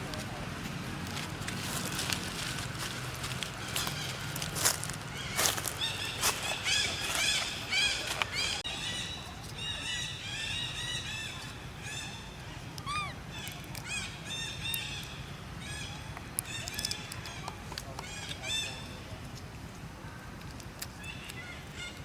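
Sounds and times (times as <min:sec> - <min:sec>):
monkeys squealing: 0:05.3 - 0:08.6, 0:12.8 - 0:14.0.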